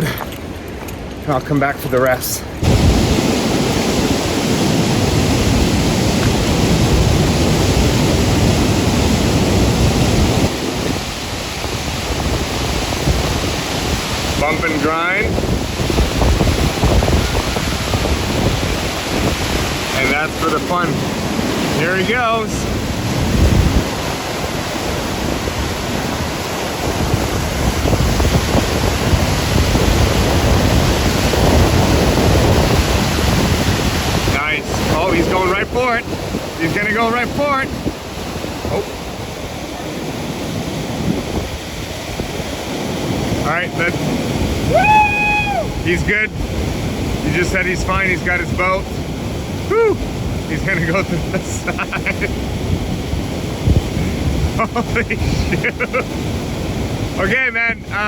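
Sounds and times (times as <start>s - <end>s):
rush of whitewater: 0.0s - 58.0s.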